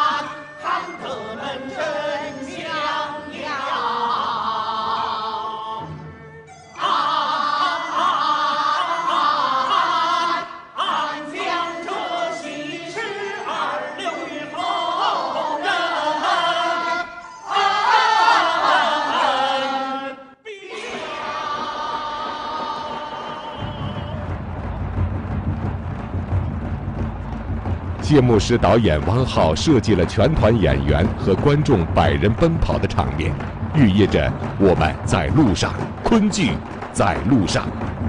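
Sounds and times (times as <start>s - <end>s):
large chorus singing opera: 0.0s - 24.8s.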